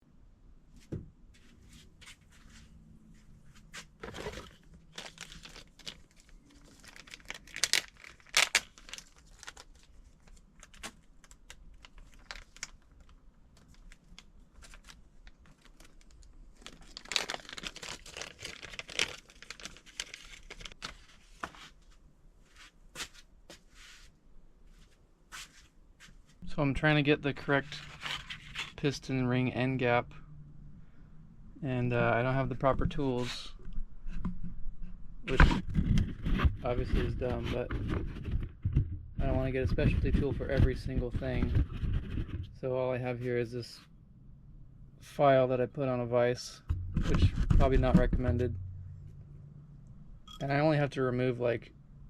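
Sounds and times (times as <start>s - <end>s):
crinkling: 2.3s - 22.0s.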